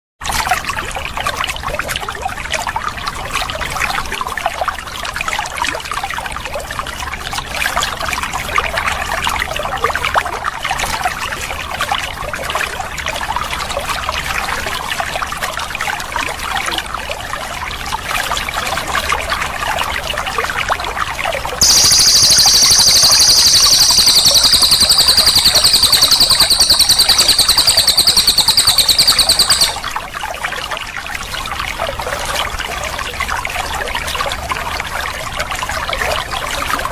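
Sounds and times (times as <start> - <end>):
songbird fast rolling trill: 21.6 - 29.9.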